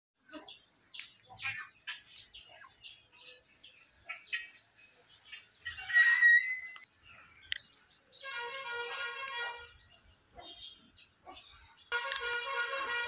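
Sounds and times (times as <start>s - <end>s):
birds chirping: 0.2s - 13.0s
steady shrill tone: 5.8s - 6.9s.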